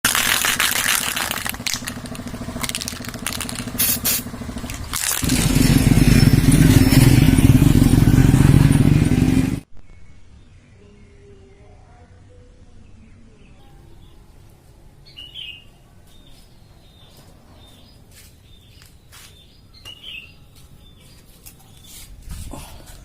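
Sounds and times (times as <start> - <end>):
motorcycle engine running: 0.1 - 9.7.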